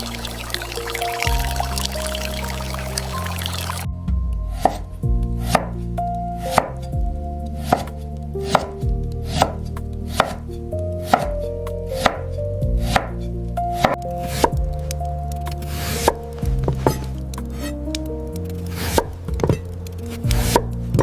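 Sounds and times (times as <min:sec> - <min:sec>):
steady rushing hiss: 0:00.0 - 0:03.9
soft background music: 0:00.0 - 0:21.0.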